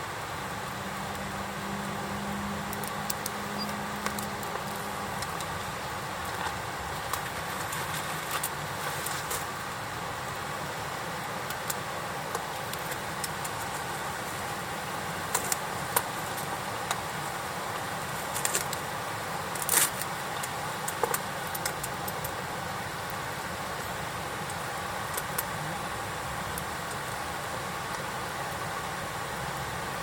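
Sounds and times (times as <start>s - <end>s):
campfire wood crackling: 0.3s - 10.5s.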